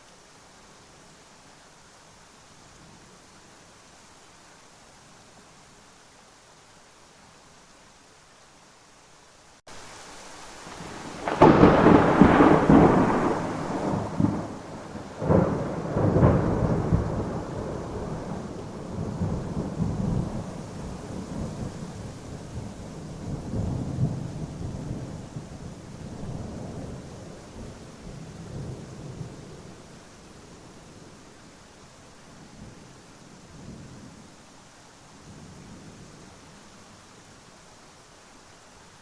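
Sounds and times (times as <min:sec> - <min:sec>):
steady rain hiss: 0:00.0 - 0:39.0
thunderclap: 0:10.8 - 0:20.4
rolling thunder rumble: 0:10.8 - 0:29.8.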